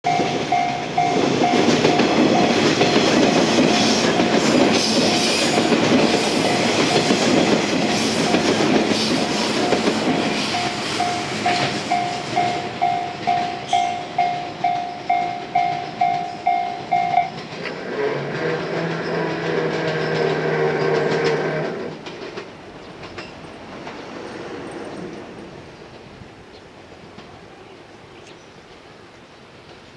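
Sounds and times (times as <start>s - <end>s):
train wheels clattering over rail joints: 0.1s - 26.2s
level crossing bell ringing: 10.6s - 17.4s.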